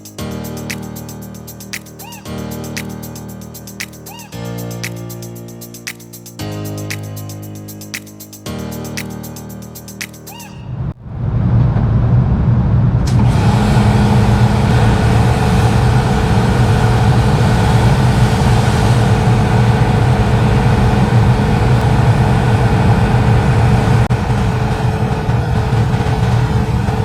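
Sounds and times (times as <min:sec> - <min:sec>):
hiss: 0:00.0 - 0:10.5
machine humming: 0:12.1 - 0:27.0.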